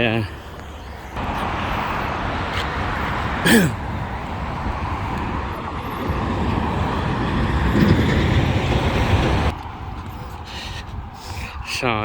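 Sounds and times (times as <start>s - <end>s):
road traffic passing: 0.0s - 11.7s.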